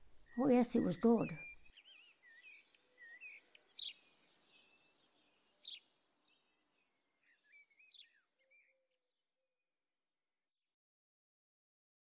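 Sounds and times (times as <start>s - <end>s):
birds chirping: 0.0s - 9.0s
sharp bird calls: 0.2s - 8.8s.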